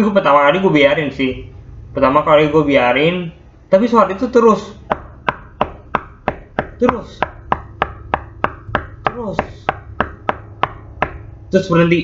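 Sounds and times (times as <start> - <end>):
rapid knocking on hard surface: 4.9 - 11.4.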